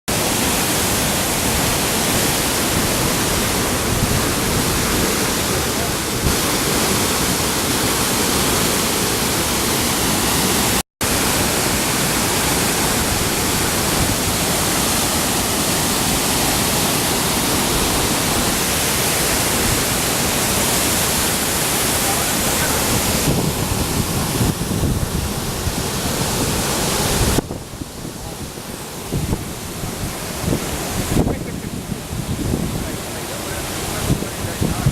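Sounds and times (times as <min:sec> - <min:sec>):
waterfall roaring: 0:00.1 - 0:34.9.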